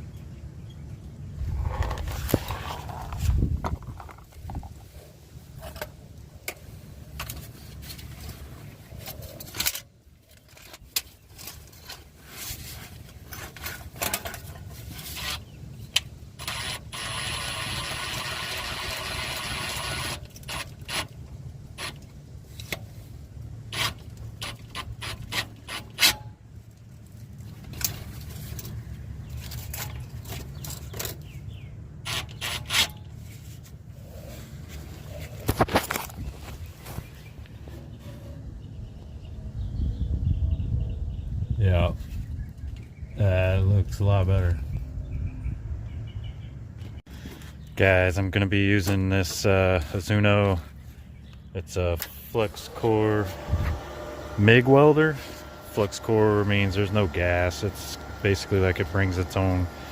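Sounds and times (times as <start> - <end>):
scraping rusty metal pipe: 7.2 - 15.6, 23.7 - 26.4, 32.0 - 36.1, 37.6 - 38.5, 54.6 - 59.9.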